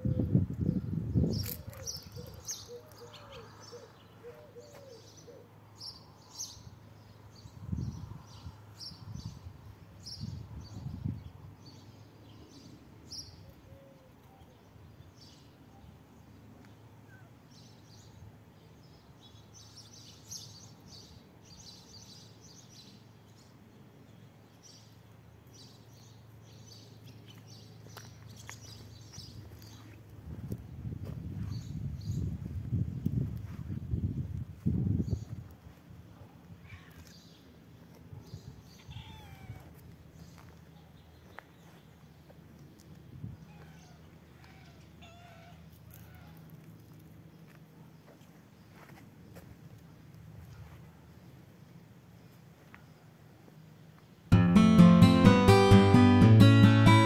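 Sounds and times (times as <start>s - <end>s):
small birds chirping: 0.7s - 13.6s, 16.6s - 30.0s.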